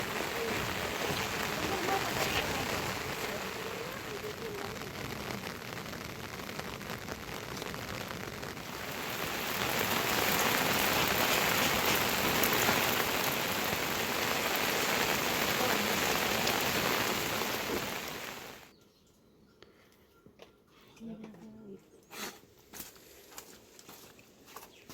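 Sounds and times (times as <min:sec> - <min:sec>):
heavy rain falling: 0:00.0 - 0:18.7.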